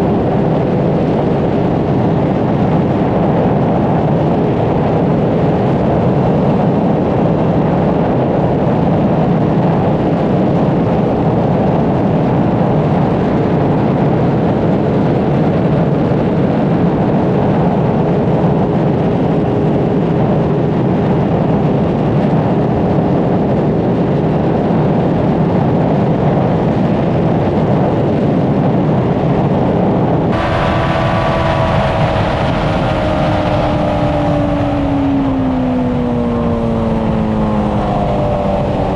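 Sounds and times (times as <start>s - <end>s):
heavy wind noise: 0.0s - 38.9s
motorcycle engine running: 30.3s - 38.9s.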